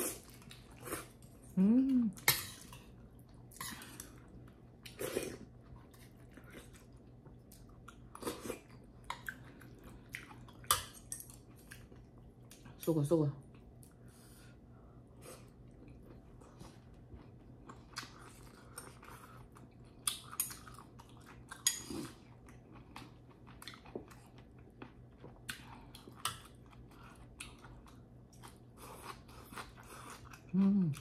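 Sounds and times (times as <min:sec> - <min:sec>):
person chewing wet mouth sounds: 0:15.4 - 0:31.0.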